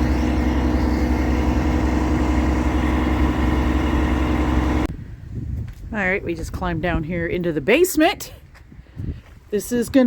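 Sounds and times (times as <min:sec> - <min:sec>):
heavy engine idling: 0:00.0 - 0:04.9.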